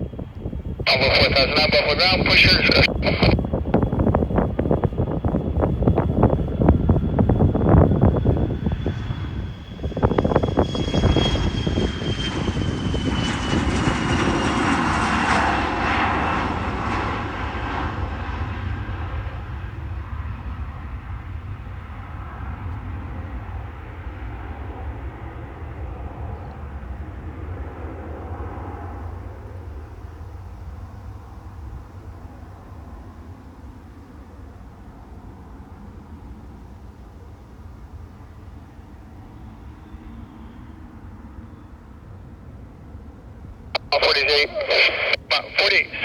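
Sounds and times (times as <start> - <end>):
wind buffeting microphone: 0.0 - 14.3
airliner taking off: 0.0 - 46.0.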